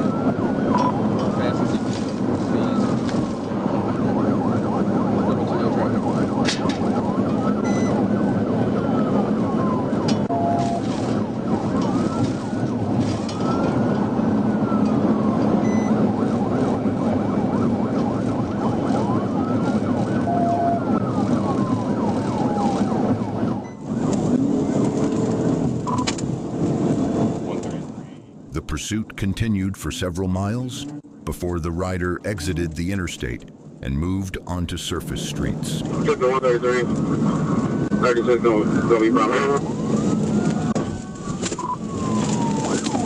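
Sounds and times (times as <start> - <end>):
police siren wailing: 0.0 - 1.8, 2.9 - 24.0
road and wind noise: 0.0 - 28.5.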